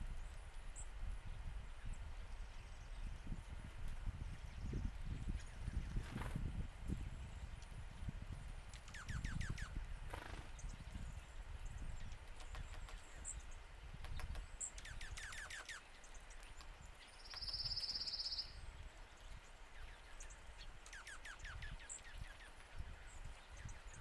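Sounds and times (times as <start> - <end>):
songbirds calling: 0.0 - 24.0
bird trill: 8.9 - 10.4, 14.6 - 18.7, 19.8 - 24.0.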